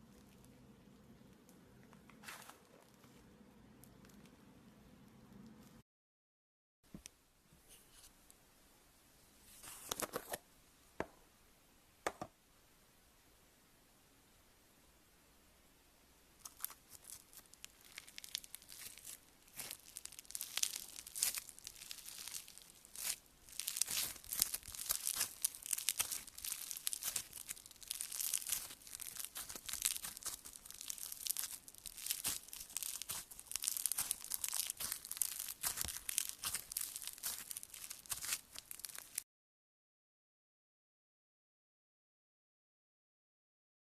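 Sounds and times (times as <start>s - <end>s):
slime crackling and crunching: 16.4s - 39.2s.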